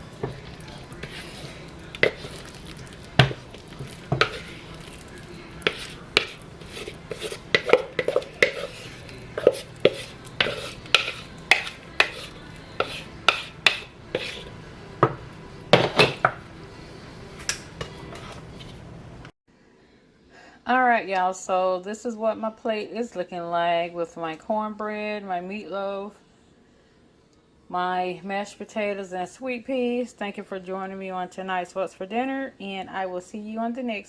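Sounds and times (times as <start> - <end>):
metal utensils clinking on dishes: 0.0 - 14.5
low steady hum: 0.0 - 34.0.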